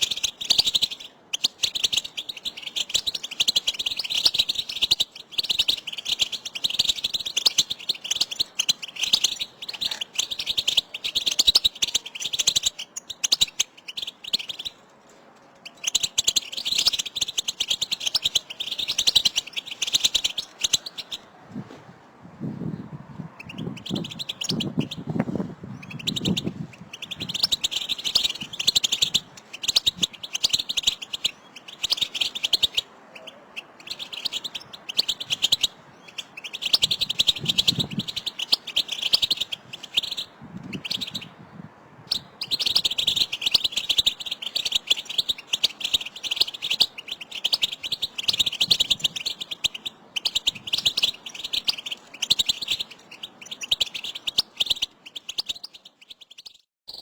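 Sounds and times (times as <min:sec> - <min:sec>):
finches twittering: 0:00.0 - 0:14.9, 0:15.6 - 0:57.0.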